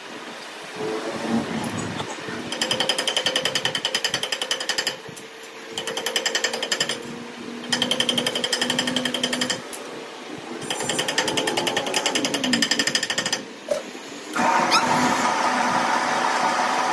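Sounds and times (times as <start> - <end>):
power tool hammering rapidly: 2.5 - 5.0, 5.8 - 9.7, 10.6 - 13.5.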